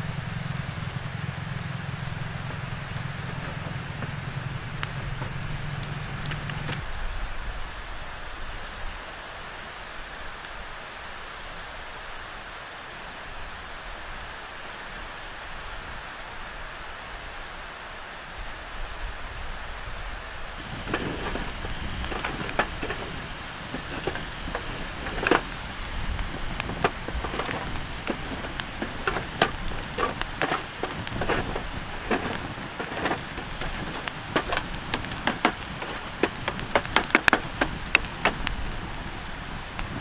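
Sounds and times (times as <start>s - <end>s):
campfire crackling and popping: 0.9s - 6.8s, 20.6s - 40.0s
steady hiss: 20.6s - 40.0s.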